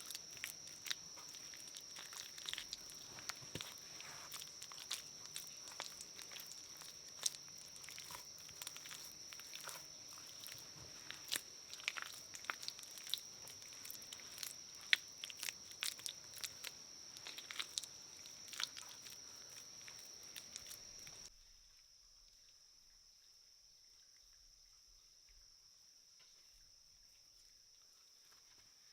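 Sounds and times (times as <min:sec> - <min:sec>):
crunching and crackling clicks: 0:00.0 - 0:21.3
high-pitched insect drone: 0:00.0 - 0:21.3.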